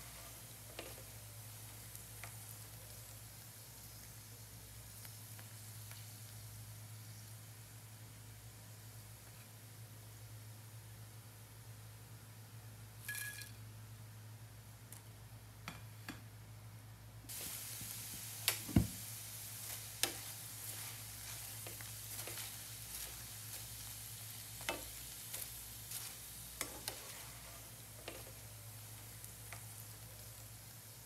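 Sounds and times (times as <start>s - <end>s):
food sizzling in a frying pan: 0.0s - 10.4s, 17.3s - 31.0s.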